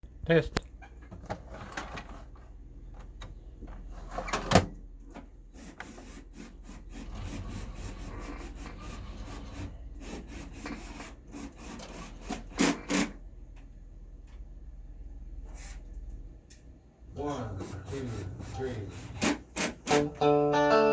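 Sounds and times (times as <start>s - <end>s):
steady low hum: 12.5s - 20.4s.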